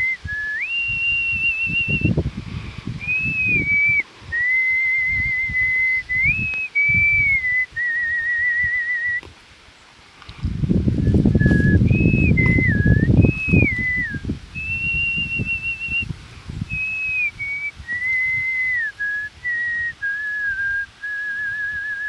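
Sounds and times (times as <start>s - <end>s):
person whistling a slow melody: 0.0s - 2.2s, 3.0s - 9.3s, 11.0s - 22.0s
low rumbling noise: 10.3s - 20.9s.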